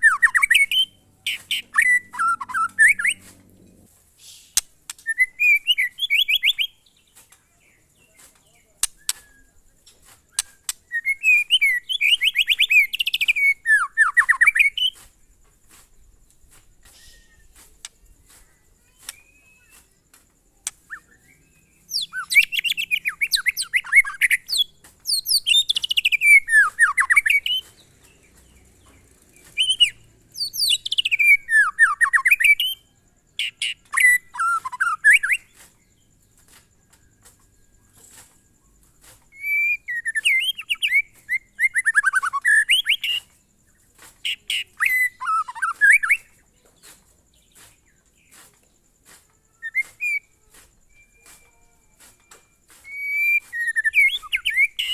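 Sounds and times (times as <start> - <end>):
bird singing rapid descending notes: 0.0 - 3.9, 20.7 - 36.1
sharp clicks: 8.8 - 9.3.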